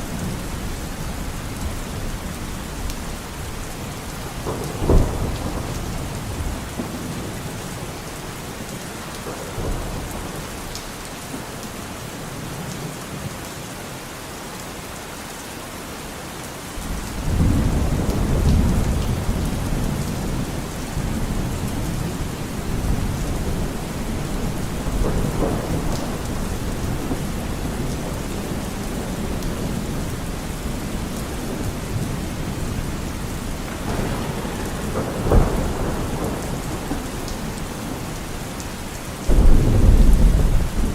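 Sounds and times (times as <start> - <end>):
heavy rain on foliage: 0.0 - 40.9
thunder rumbling: 0.1 - 8.0, 16.8 - 40.9.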